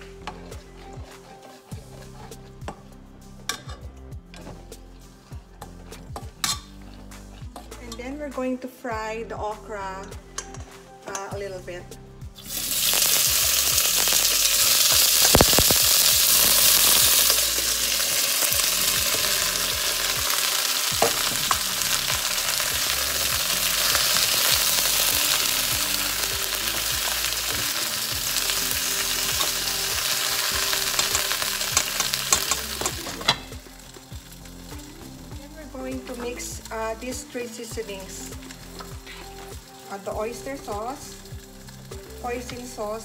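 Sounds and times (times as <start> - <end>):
okra sizzling in hot oil: 0.0 - 3.7, 12.3 - 43.0
metal spoon clinking against pot: 30.7 - 33.4.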